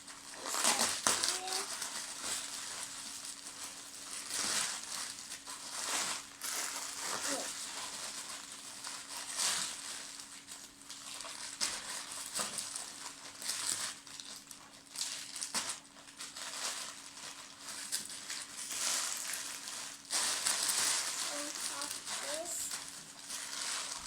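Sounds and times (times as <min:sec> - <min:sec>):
packaging crinkling and rustling: 0:00.0 - 0:24.0.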